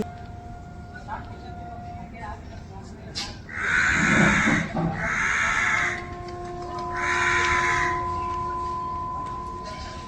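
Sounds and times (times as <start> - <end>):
harsh raspy bird squawks: 3.5 - 5.9.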